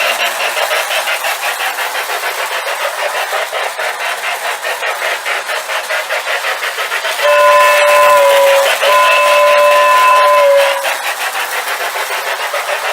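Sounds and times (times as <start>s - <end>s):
model steam locomotive chuffing: 0.0s - 12.9s.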